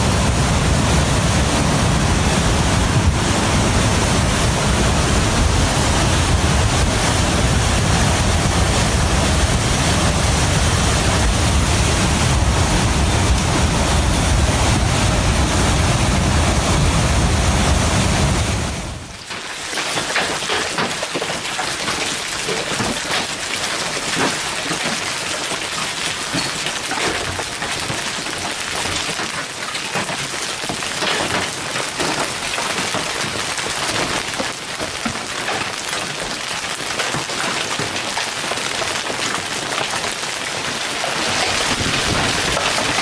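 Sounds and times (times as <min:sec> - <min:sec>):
wind rumble on microphone: 0:00.0 - 0:19.1, 0:41.2 - 0:43.0
flood water rushing: 0:19.0 - 0:43.0.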